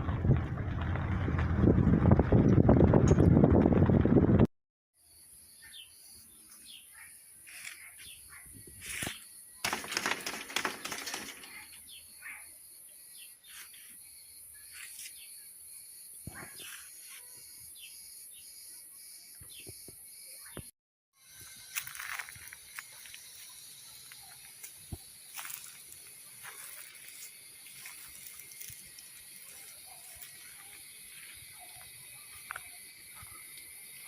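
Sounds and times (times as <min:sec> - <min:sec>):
birds chirping: 0:05.4 - 0:20.7
steady high-pitched hiss: 0:21.2 - 0:34.0.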